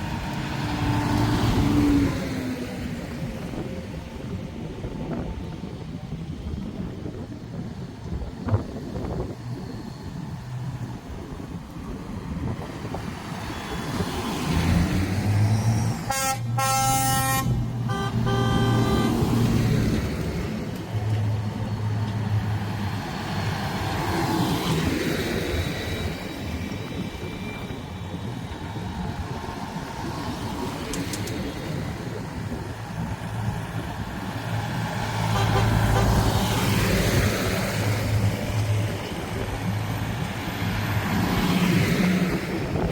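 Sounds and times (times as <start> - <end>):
vehicle horn toots: 16.0 - 19.3, 35.3 - 36.2.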